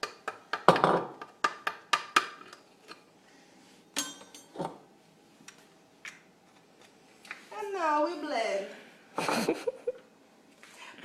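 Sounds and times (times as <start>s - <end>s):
kitchenware knocks and clinks: 0.6s - 1.2s, 4.0s - 4.8s.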